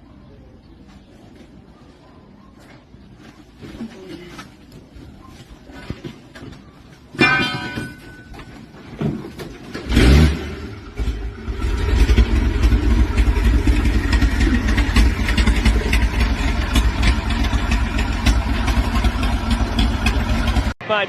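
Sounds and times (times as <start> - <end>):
engine starting and rumbling: 9.1 - 20.8.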